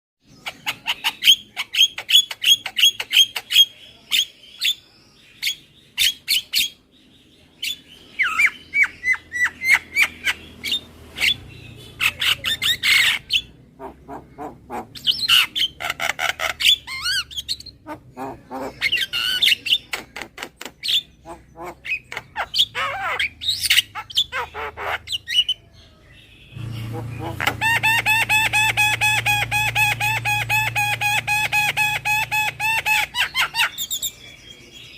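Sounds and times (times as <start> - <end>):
myna calling: 8.4 - 20.0, 21.0 - 25.6, 26.5 - 34.2.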